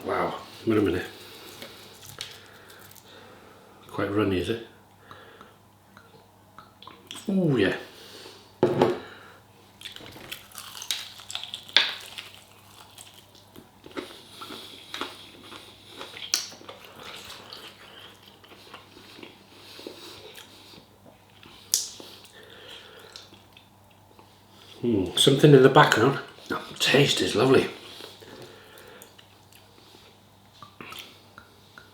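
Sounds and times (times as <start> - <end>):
person chewing: 1.0 - 3.1, 9.7 - 24.8, 27.8 - 31.9.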